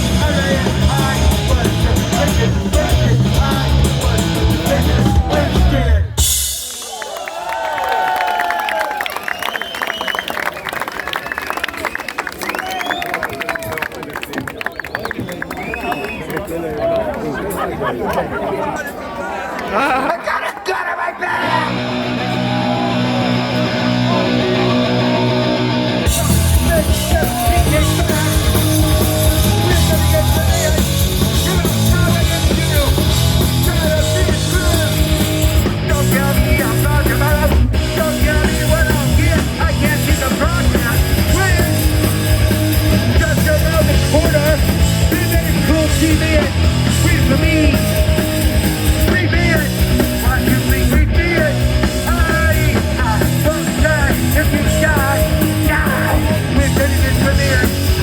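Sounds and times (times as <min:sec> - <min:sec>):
punk rock band playing live: 0:00.0 - 0:06.9, 0:21.4 - 0:58.0
drums and bass: 0:00.0 - 0:07.2, 0:21.4 - 0:58.0.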